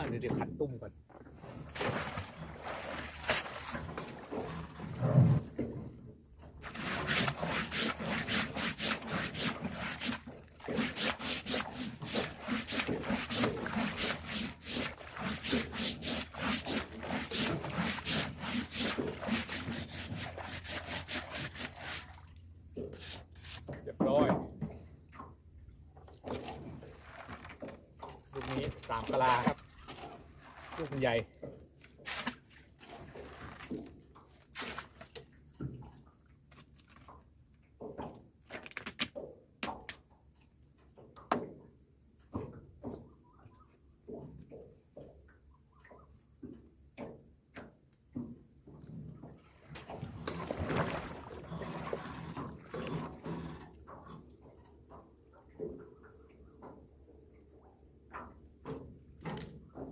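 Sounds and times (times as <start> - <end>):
knocks and clatters in a boat: 0.0 - 59.9
water dripping and splashing: 1.7 - 4.9, 6.7 - 23.7, 49.4 - 58.3
scrubbing strokes on fish trap: 1.8 - 3.9, 6.6 - 23.8, 49.6 - 54.0.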